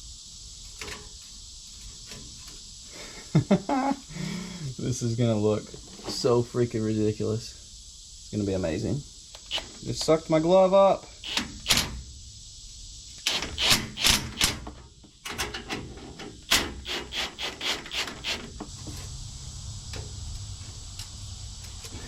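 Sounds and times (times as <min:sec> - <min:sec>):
knocks and scraping on exhaust pipe: 0:00.7 - 0:02.6, 0:13.3 - 0:19.2.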